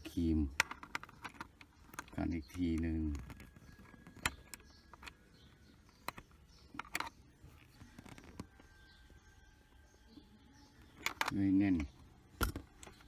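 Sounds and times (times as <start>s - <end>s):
clicks of small parts being handled: 0.5s - 5.2s, 6.0s - 7.2s, 10.8s - 13.0s.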